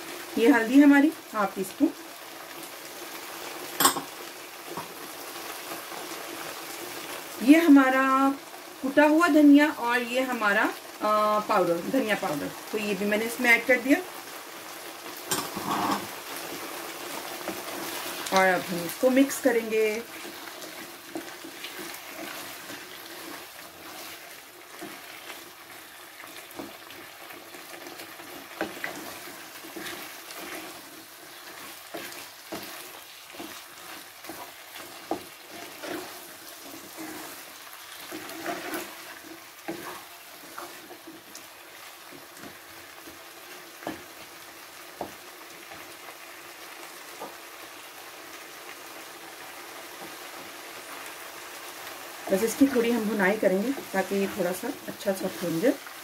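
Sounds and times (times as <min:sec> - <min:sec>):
potatoes sizzling in a pan: 0:00.0 - 0:56.0
wooden spatula scraping a pan: 0:15.3 - 0:46.0, 0:52.2 - 0:56.0.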